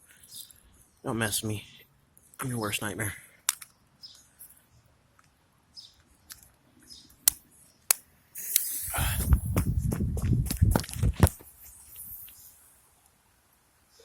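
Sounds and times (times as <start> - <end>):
sharp clicks: 7.1 - 9.4
firework hissing and crackling: 8.4 - 9.6.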